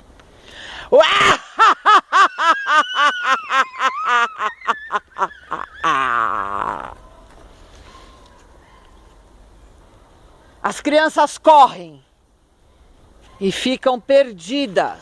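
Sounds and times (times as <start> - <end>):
long high cry: 0.9 - 7.0
cackling laugh: 1.0 - 7.0.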